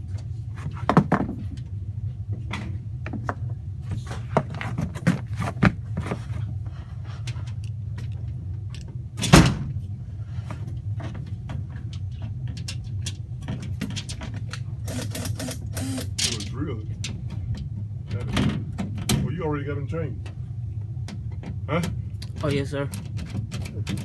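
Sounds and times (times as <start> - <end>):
steady low hum: 0.0 - 24.0
metal panels clicking and rattling: 11.0 - 14.7, 21.0 - 24.0.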